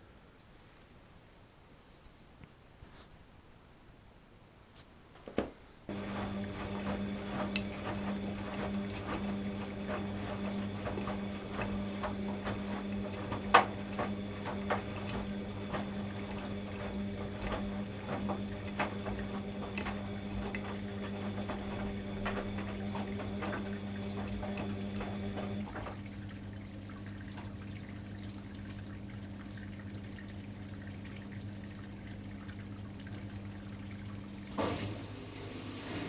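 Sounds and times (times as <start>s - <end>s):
washing machine hum: 5.2s - 36.0s
water splashing and trickling: 5.9s - 34.6s.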